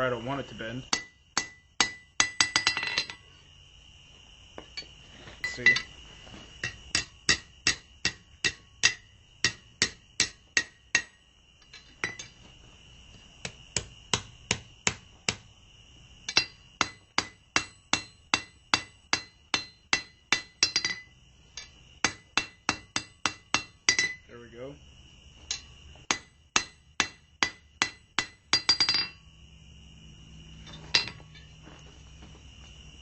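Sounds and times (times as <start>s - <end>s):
hammer striking steel on anvil: 0.9s - 3.2s, 5.4s - 5.9s, 6.6s - 12.3s, 16.3s - 24.2s, 25.5s - 29.2s, 30.9s - 31.5s.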